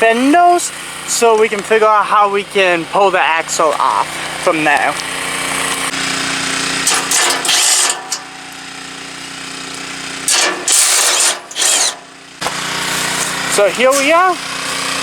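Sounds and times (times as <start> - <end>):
power drill running: 4.0 - 15.0
steady hum: 10.2 - 15.0.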